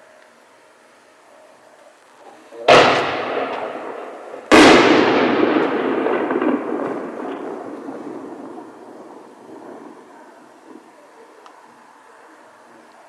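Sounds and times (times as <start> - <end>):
firework shells bursting: 2.6 - 11.6.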